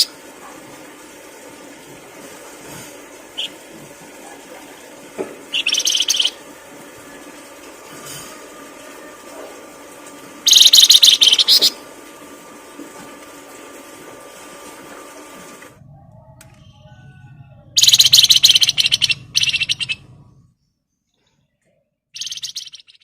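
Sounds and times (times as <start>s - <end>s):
songbird singing rapid trills: 5.6s - 6.4s, 10.5s - 11.7s, 17.8s - 20.0s, 22.2s - 23.0s.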